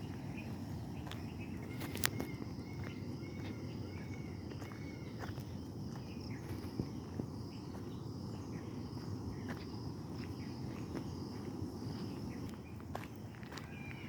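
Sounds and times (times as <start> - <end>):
bird chirps: 0.0 - 11.2
insects buzzing: 0.0 - 14.0.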